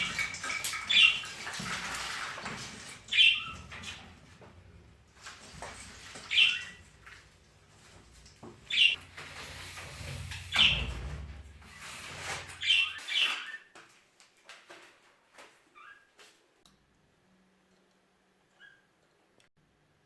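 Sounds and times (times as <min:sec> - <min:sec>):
budgerigars chirping: 0:03.1 - 0:03.6, 0:06.3 - 0:06.8, 0:08.7 - 0:09.0, 0:12.6 - 0:13.6
budgerigars chattering: 0:08.7 - 0:09.0.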